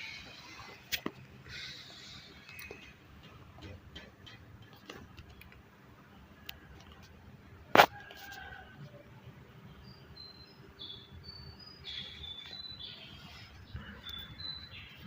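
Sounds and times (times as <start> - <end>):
small birds chirping: 0.0 - 3.8, 9.6 - 15.0.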